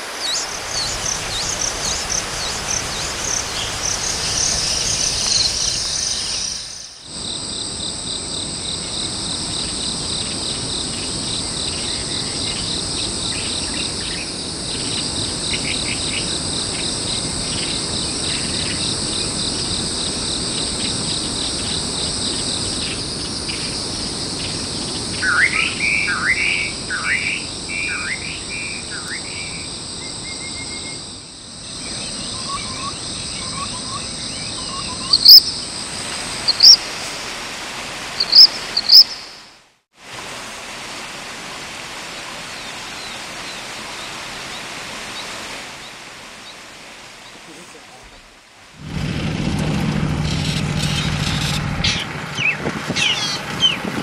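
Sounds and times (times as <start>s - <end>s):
high insect chorus: 0.0s - 39.6s.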